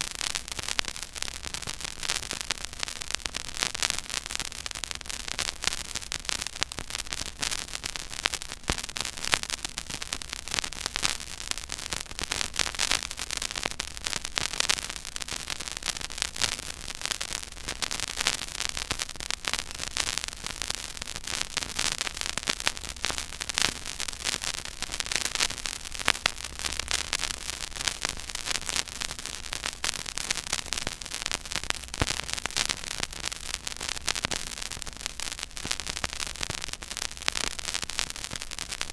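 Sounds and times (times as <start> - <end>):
vinyl record surface crackle: 0.0 - 38.9.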